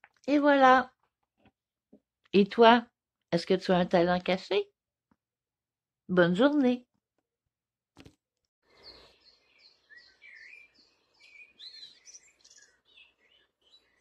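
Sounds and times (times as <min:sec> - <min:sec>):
faint birdsong: 0:08.6 - 0:14.0.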